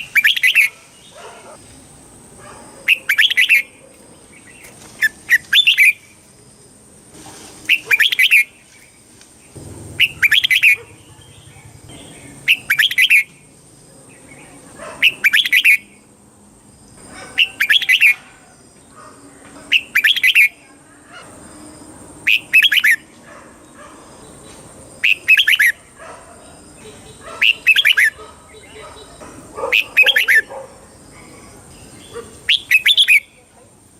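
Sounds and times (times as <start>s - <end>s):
bird singing warbled phrases: 0.0s - 1.6s, 2.8s - 6.2s, 7.7s - 16.1s, 17.2s - 18.3s, 19.6s - 21.1s, 22.2s - 23.0s, 24.2s - 33.6s.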